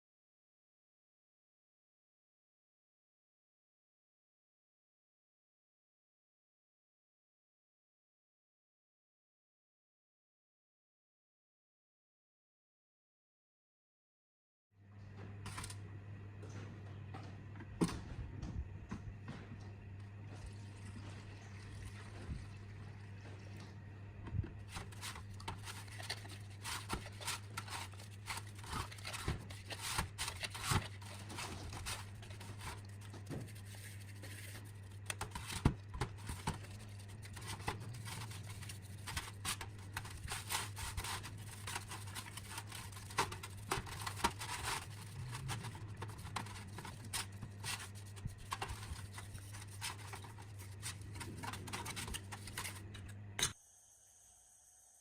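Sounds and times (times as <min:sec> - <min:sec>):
steady low hum: 0:14.9 - 0:53.6.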